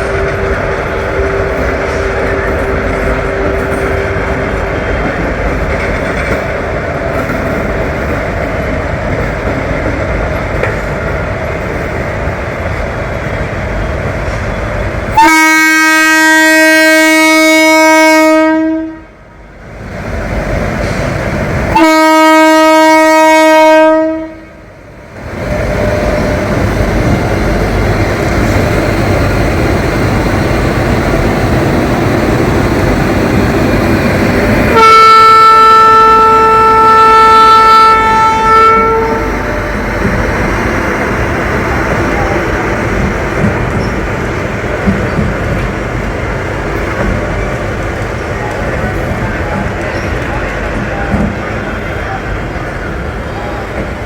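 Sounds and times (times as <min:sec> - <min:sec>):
locomotive horn blasts: 0:00.0 - 0:05.4, 0:15.1 - 0:19.2, 0:21.7 - 0:24.5, 0:34.6 - 0:39.9
train rumbling: 0:00.0 - 0:54.0.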